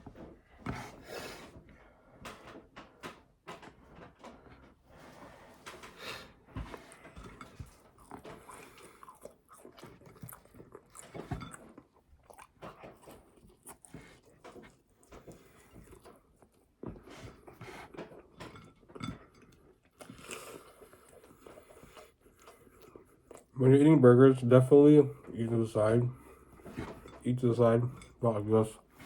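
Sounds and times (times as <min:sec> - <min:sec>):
chewing and biting burger: 0:06.9 - 0:18.4, 0:19.5 - 0:23.6.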